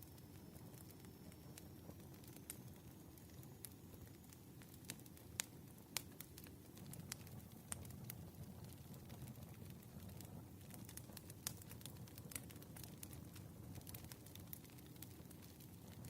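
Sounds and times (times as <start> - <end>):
fire crackles and pops: 0.0 - 16.0
fire low rumble: 0.0 - 16.0.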